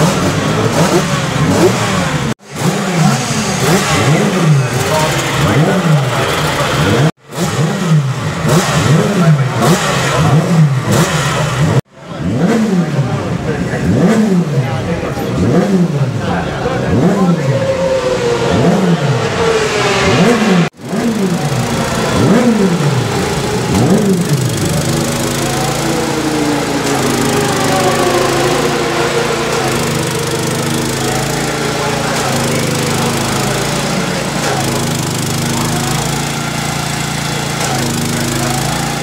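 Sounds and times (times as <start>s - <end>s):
motorcycle engines revving: 0.0s - 39.0s
motorcycle engine idling: 20.8s - 39.0s.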